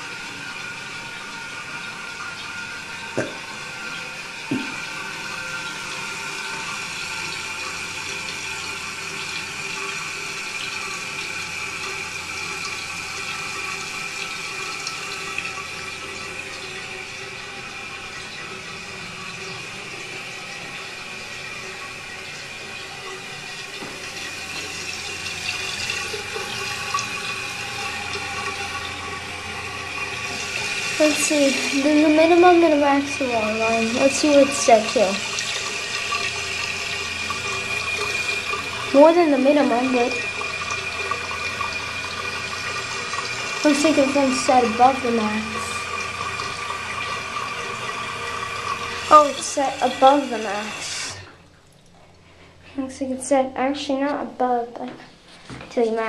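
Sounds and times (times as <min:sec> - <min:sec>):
hiss of running water: 0:24.4 - 0:51.2.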